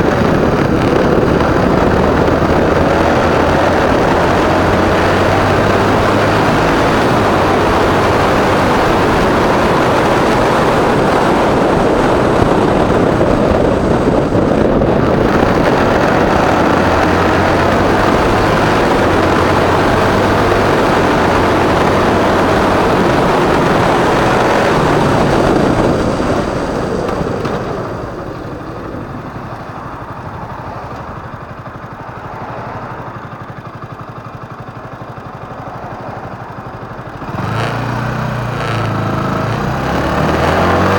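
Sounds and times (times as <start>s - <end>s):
motorcycle engine running: 0.0s - 40.9s
wind rush and road noise: 0.0s - 40.9s.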